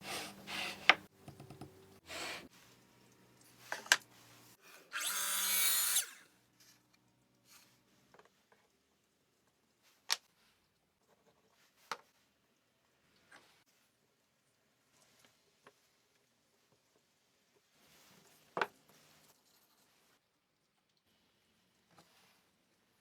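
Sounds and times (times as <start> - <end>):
woodworking power tool bursts: 4.9 - 6.3.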